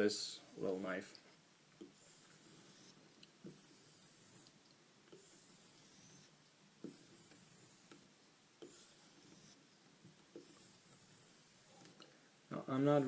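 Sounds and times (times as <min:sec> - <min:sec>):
knife blade rubbing on strop: 0:01.9 - 0:04.6, 0:05.2 - 0:09.6.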